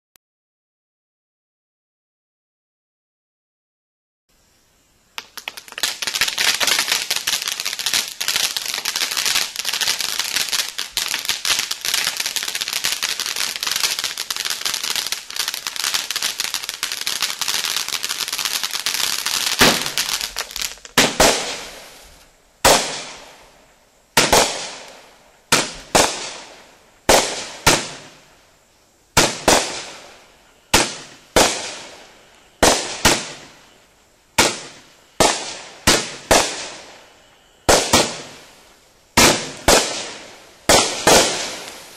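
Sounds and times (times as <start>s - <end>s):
fireworks fountain crackling hiss: 4.3s - 41.9s
firework shots banging: 18.8s - 21.8s, 24.2s - 26.5s, 39.2s - 41.8s.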